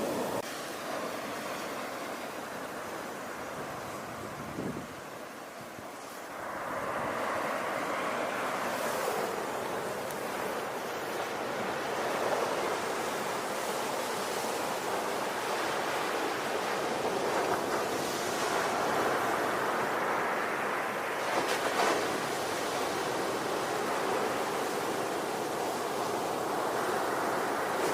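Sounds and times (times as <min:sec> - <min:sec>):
ocean waves breaking on shore: 0:00.0 - 0:27.9.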